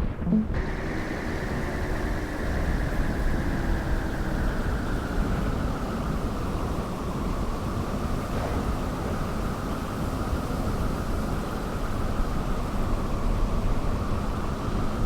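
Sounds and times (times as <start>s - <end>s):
vehicle road noise: 0.0s - 10.1s
wind noise: 0.0s - 10.7s.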